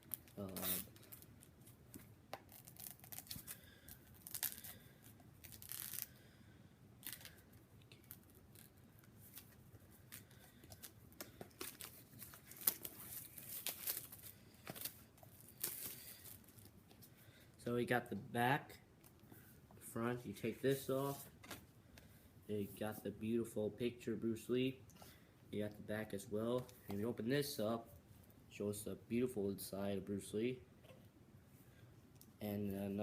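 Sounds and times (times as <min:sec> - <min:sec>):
packaging torn and crinkled: 0:02.4 - 0:04.8, 0:05.4 - 0:06.2, 0:11.5 - 0:16.7.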